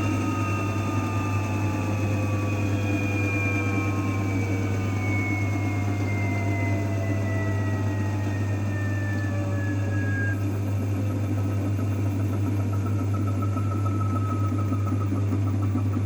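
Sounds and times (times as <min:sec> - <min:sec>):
thin falling whine: 0:00.0 - 0:10.5
washing machine motor hum: 0:00.0 - 0:16.0.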